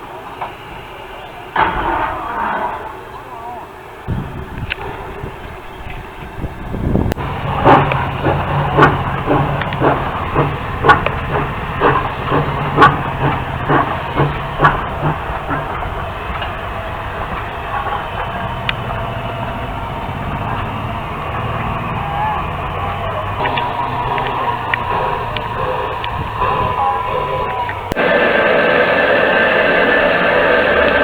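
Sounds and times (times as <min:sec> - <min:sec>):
steam train chugging: 0:00.0 - 0:31.0
steam hiss: 0:06.4 - 0:31.0.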